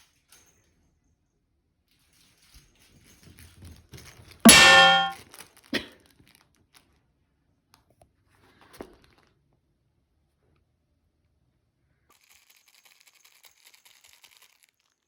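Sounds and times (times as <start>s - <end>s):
metal object clanging: 4.5s - 5.2s.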